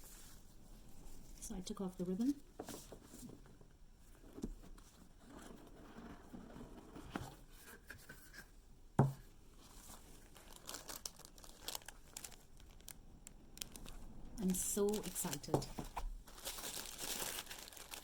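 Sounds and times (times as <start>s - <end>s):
packaging scraping and rustling: 9.6s - 13.0s, 13.6s - 18.0s.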